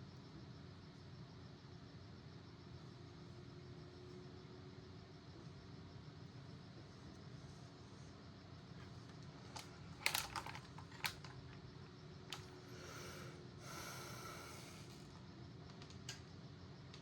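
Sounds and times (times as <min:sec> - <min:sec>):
clicks and taps of small parts: 0:09.1 - 0:11.4.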